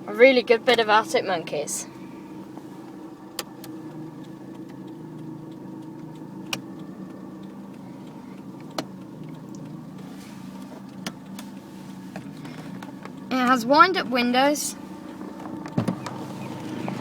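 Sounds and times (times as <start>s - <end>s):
car engine idling: 0.0s - 17.0s
sharp clicks: 3.3s - 9.9s.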